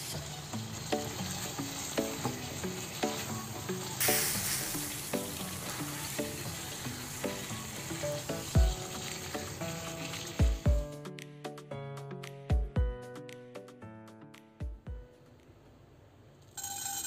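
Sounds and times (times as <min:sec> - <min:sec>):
curry sizzling in a pan: 0:00.0 - 0:10.9
plucked melody background music: 0:00.0 - 0:15.2.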